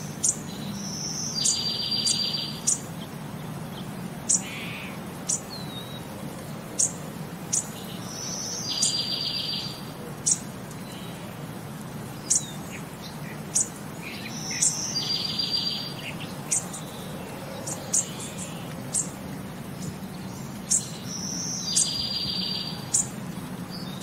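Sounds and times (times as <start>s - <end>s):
trilled bird song: 0.0s - 24.0s
sharp high bird chirps: 0.2s - 2.9s.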